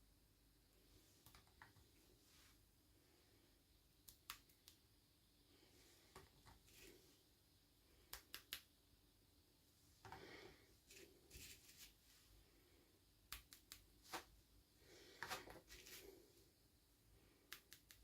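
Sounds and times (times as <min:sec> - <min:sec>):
rustling scrapes: 0:10.8 - 0:12.3, 0:15.2 - 0:16.3.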